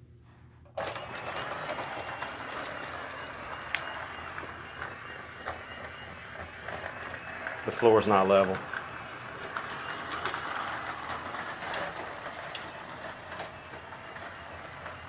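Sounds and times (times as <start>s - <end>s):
toy train running on track: 0.8s - 15.0s.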